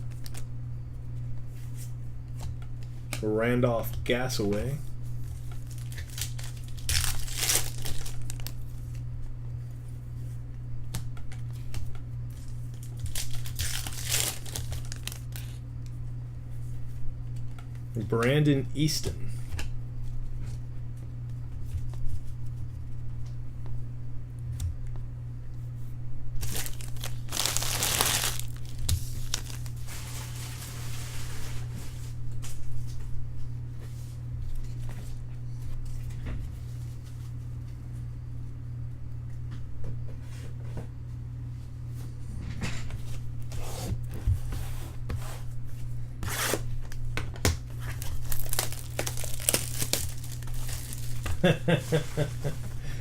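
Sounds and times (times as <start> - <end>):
wrappers tearing and crinkling: 0.0 - 0.5, 5.3 - 8.7, 12.4 - 15.6, 26.4 - 31.8, 47.7 - 52.3
steady low hum: 0.0 - 53.0.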